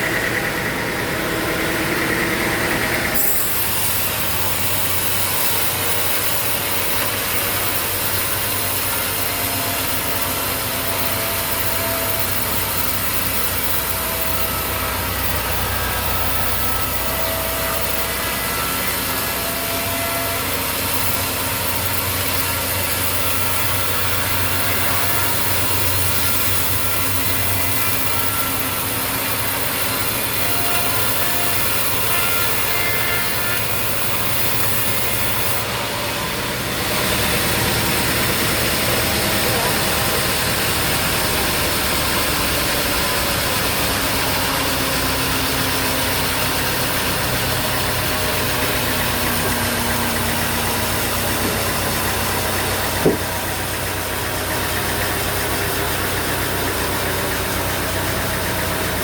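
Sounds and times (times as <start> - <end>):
motor running: 0.0 - 59.0
saw cutting through log: 0.0 - 59.0
faint wavering blade whine: 3.0 - 35.7.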